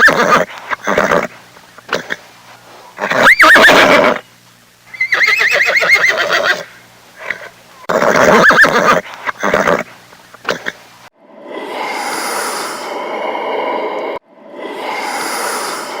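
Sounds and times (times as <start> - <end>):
horse whinnying: 0.0 - 1.3, 3.0 - 4.2, 5.0 - 9.9.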